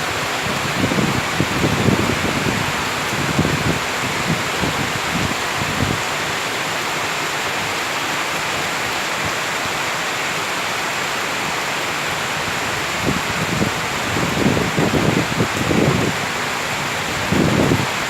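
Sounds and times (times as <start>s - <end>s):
low gusty rumbles: 0.0s - 6.0s
heavy rain in forest: 0.0s - 18.0s.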